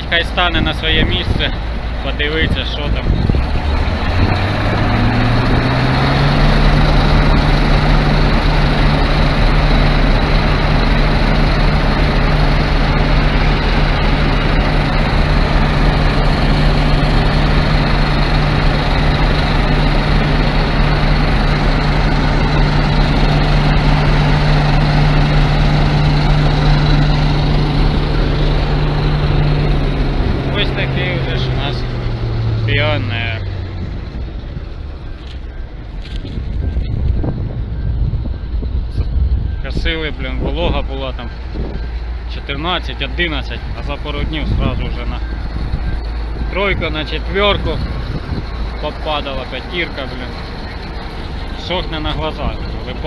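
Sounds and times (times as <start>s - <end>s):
combine harvester engine revving: 0.0s - 53.0s
threshing machinery running: 0.0s - 53.0s.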